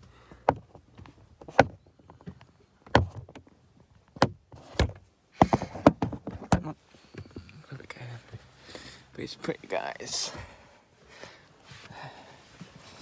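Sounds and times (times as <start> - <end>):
sharp knocks and clunks: 0.4 - 3.4, 4.2 - 7.5.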